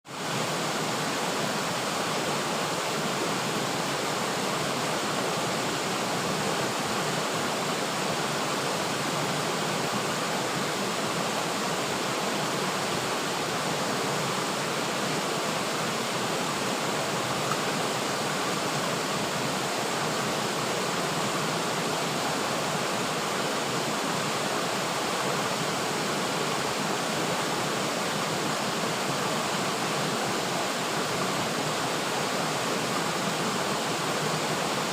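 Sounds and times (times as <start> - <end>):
water rushing over rocks: 0.1 - 34.9.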